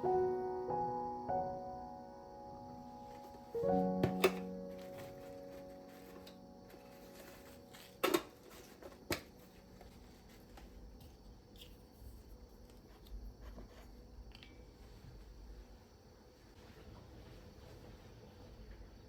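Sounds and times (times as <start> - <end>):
faint clicks and handling: 4.0 - 13.6.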